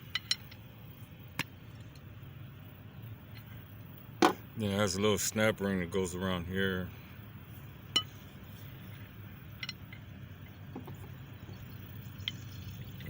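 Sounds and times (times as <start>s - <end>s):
light metal clicks and clinks: 0.0s - 0.7s, 7.9s - 11.1s
steady low hum: 0.0s - 13.0s.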